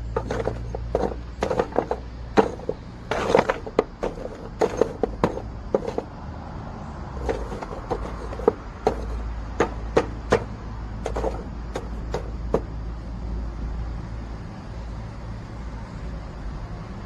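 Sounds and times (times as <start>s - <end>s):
sharp irregular knocks: 0.0s - 6.1s, 7.2s - 12.7s.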